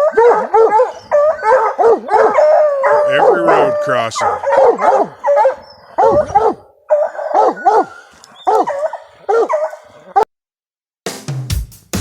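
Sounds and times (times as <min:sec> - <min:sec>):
hounds baying: 0:00.0 - 0:10.3.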